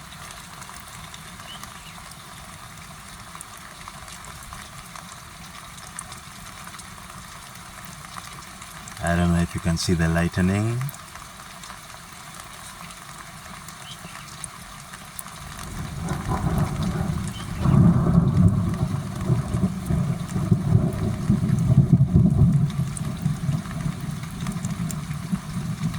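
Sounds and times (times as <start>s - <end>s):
thunder rumbling: 15.6s - 25.9s.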